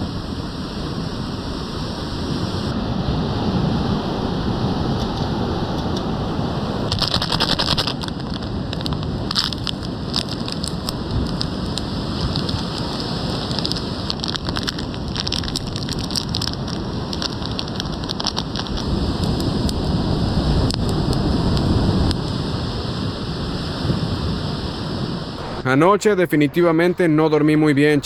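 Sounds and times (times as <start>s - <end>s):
surf rushing: 0.0s - 28.0s
wind: 0.0s - 28.0s
small fire crackling: 4.9s - 25.6s.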